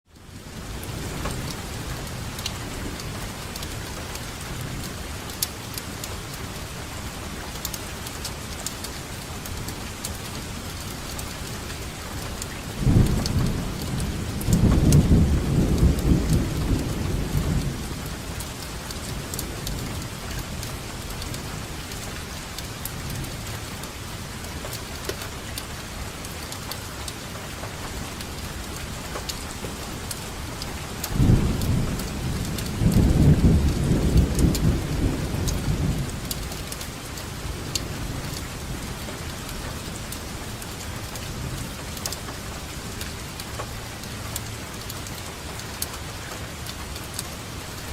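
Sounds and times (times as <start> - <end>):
steady rain falling: 0.0 - 47.9
close raindrop taps: 7.5 - 47.9
roll of thunder: 31.2 - 36.4.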